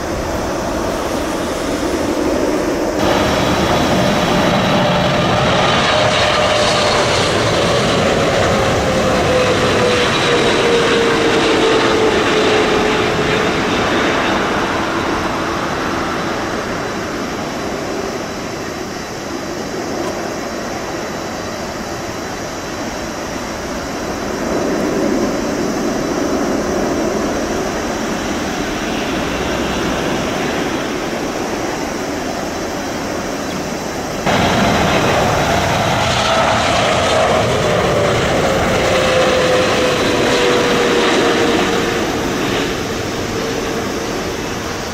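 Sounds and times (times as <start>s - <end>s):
jet airliner passing: 0.0s - 44.9s.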